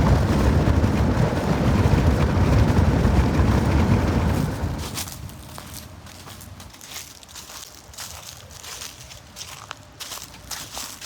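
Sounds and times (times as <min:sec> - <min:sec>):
wind buffeting microphone: 0:00.0 - 0:05.7.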